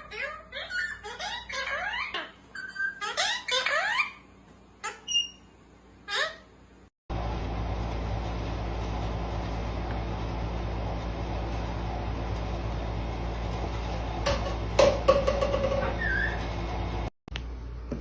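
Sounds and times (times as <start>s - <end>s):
low machine hum: 7.1s - 18.0s.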